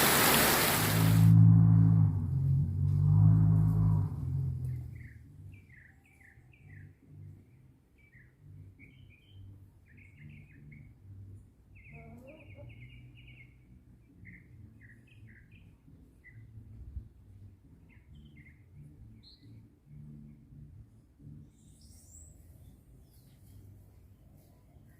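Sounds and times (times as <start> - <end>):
low rumble: 0.8 - 5.7
small birds chirping: 11.7 - 16.6.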